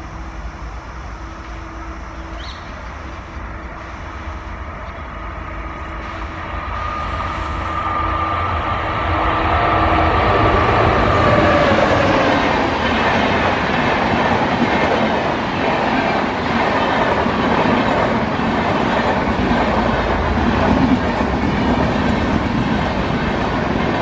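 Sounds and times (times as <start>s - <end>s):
high steady whine: 0.0s - 13.6s
train running noise: 0.0s - 24.0s.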